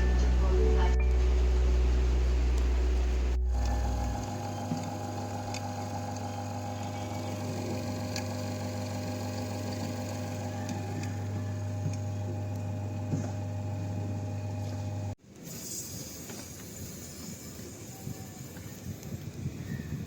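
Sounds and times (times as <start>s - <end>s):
held higher tones: 0.0s - 13.0s
electrical machine hum: 0.0s - 15.2s.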